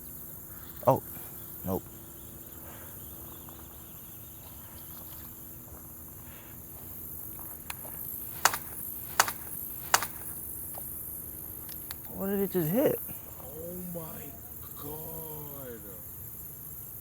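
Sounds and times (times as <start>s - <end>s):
insects chirring: 0.0s - 17.0s
sharp clicks: 7.6s - 10.3s.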